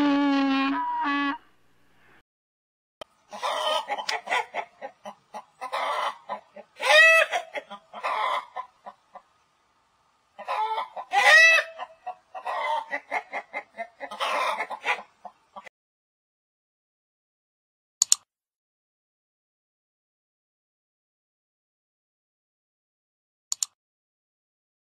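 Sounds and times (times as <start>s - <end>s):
chickens clucking and squawking: 3.2s - 9.5s, 10.3s - 15.7s.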